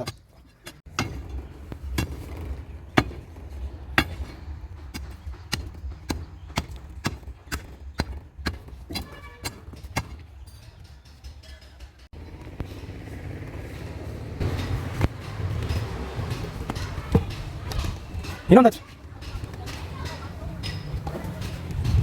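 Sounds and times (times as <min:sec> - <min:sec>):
digging tool striking hard ground: 0:00.0 - 0:10.4.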